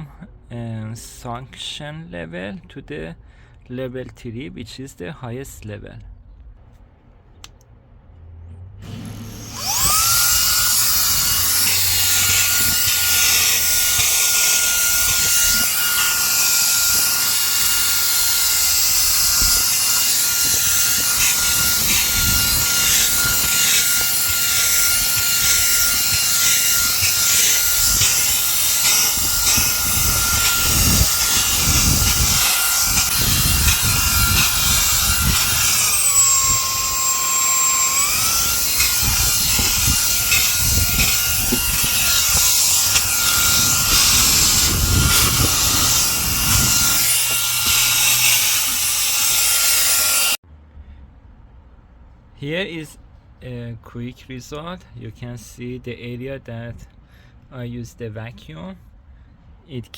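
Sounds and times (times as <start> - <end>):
handheld vacuum motor whine: 8.8 - 50.4
nozzle scrubbing on carpet: 8.9 - 49.9.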